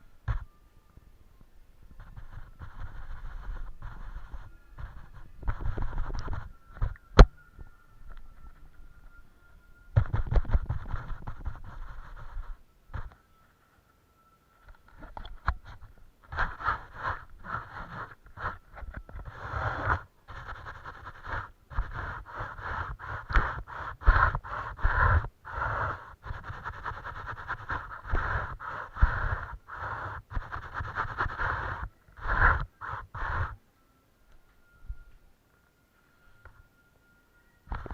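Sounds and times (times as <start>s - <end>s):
brush scrubbing paint: 2.0s - 7.0s, 10.0s - 13.1s, 15.0s - 33.6s.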